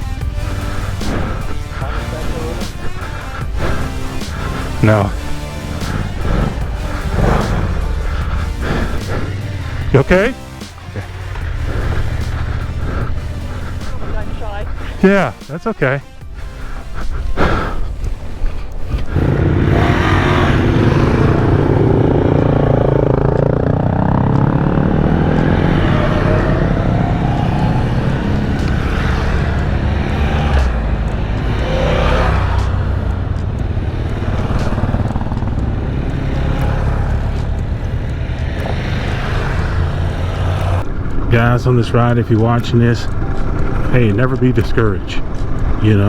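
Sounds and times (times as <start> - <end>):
motorcycle engine accelerating: 0.0 - 46.0
wind and road noise: 0.0 - 46.0.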